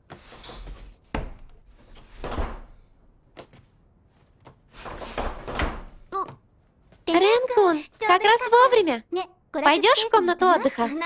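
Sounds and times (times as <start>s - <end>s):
sliding door on its track: 4.7s - 6.0s.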